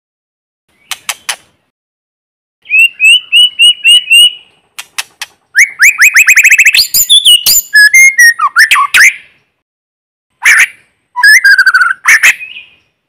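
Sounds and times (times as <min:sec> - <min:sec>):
bird clicks: 0:00.8 - 0:01.5, 0:04.8 - 0:05.4
bird singing whistled notes: 0:02.6 - 0:04.6, 0:05.5 - 0:09.4, 0:10.6 - 0:13.0.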